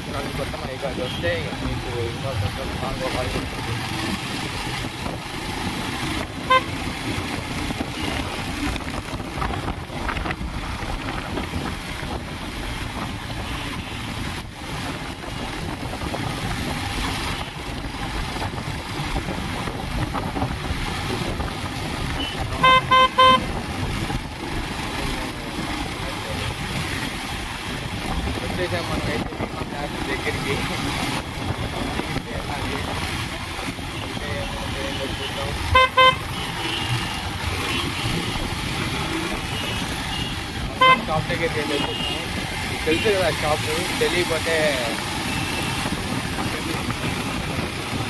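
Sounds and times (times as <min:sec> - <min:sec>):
wind noise: 0:00.0 - 0:48.0
vehicle horn toots: 0:06.4 - 0:06.8, 0:22.2 - 0:23.5, 0:34.9 - 0:38.3, 0:39.4 - 0:42.3.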